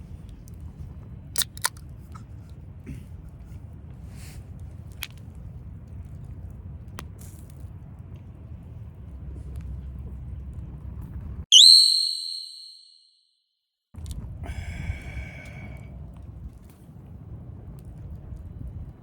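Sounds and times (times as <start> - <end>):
rising whistle sound effect: 11.5 - 13.1.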